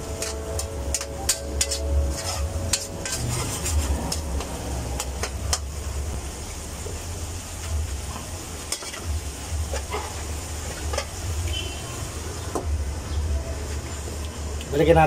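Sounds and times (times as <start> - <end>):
metal utensil scraping pans: 0.0 - 5.7, 8.1 - 9.1, 9.7 - 11.6
sauce sizzling in a wok: 0.0 - 13.2.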